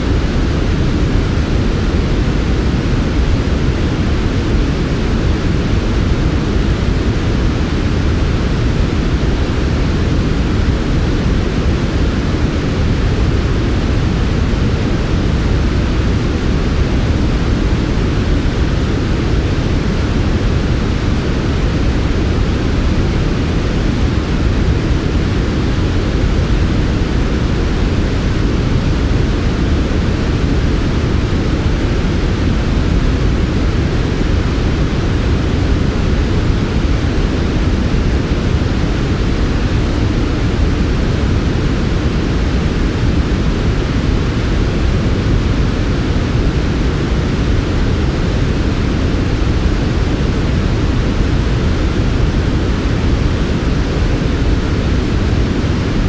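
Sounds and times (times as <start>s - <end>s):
white noise with low rumble: 0.0s - 56.0s.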